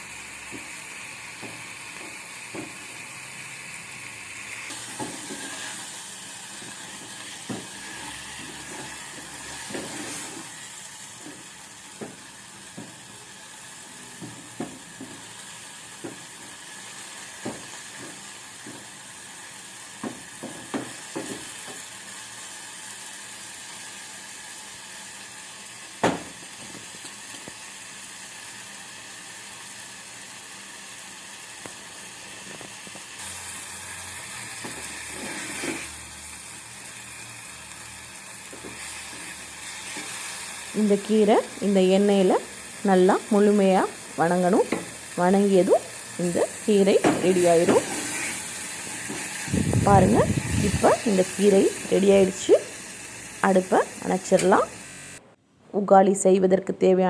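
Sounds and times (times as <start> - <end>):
greens sizzling in oil: 0.0 - 55.2
spoon knocking and scraping pan: 4.7 - 5.9, 6.6 - 10.5, 20.0 - 21.8, 44.6 - 45.0, 46.9 - 48.1.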